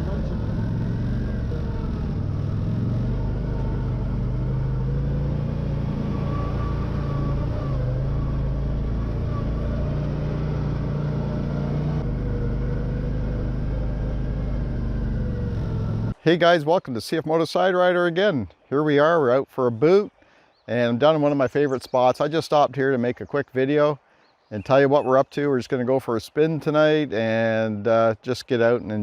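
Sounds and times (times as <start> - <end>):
vehicle engine running: 0.0 - 16.2.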